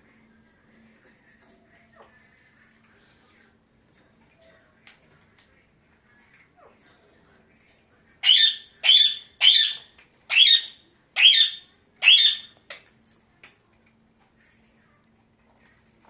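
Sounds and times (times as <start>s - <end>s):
parakeet screeching: 8.2s - 12.5s.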